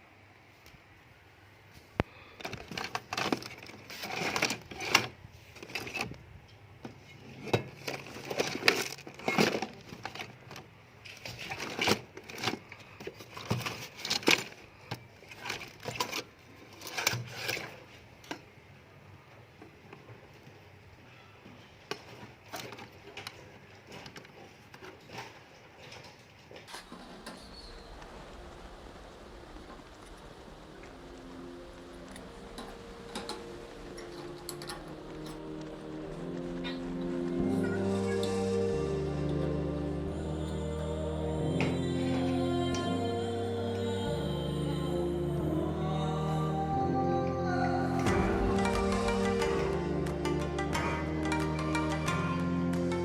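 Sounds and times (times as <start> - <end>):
small hard objects clattering: 26.6 - 38.8.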